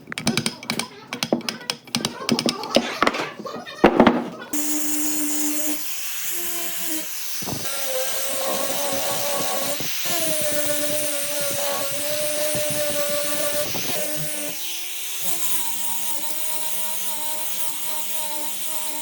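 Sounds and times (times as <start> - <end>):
electric power tool whine: 4.6 - 19.0.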